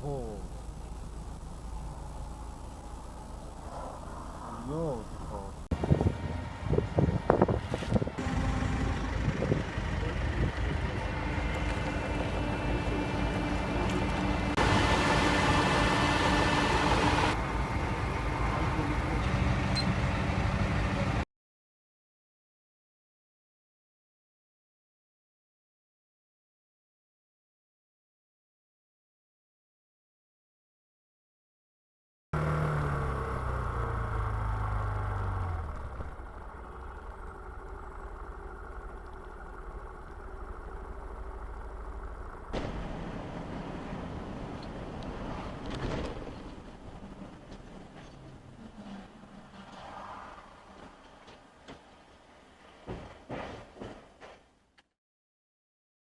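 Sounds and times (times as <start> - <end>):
car engine hum: 0.0 - 21.2, 32.4 - 52.5
road noise: 0.0 - 21.2, 32.4 - 54.8.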